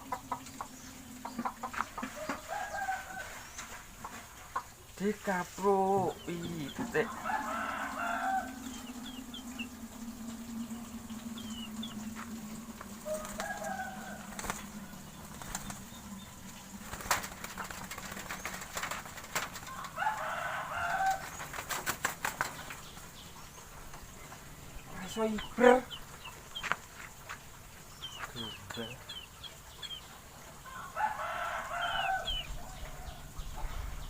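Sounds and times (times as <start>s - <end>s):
hen clucking: 0.0s - 33.9s
small birds chirping: 0.0s - 34.0s
steady low hum: 5.7s - 30.6s
pigeon wings flapping: 14.3s - 15.9s, 16.8s - 20.0s, 21.0s - 22.8s.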